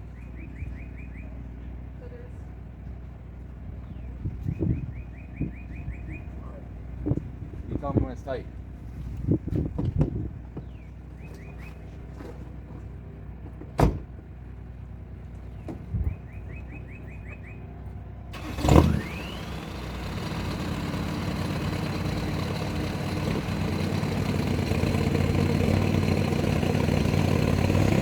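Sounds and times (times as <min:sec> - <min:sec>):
truck engine cranking and starting: 0:18.3 - 0:28.0.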